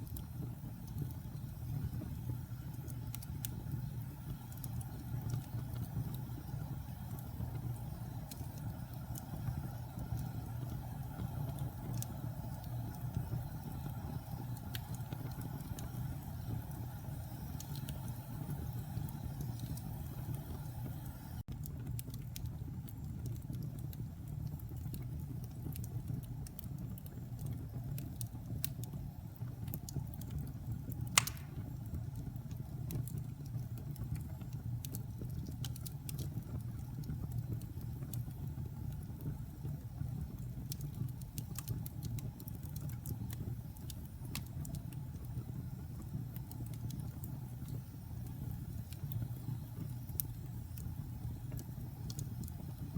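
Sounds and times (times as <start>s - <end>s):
fire popping: 0.0s - 52.9s
wood fire crackling: 0.0s - 52.9s.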